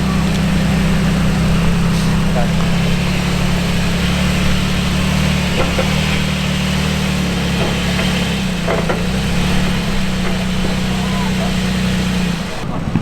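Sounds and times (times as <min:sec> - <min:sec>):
truck engine at low revs: 0:00.0 - 0:13.0
faint knocks: 0:01.7 - 0:13.0.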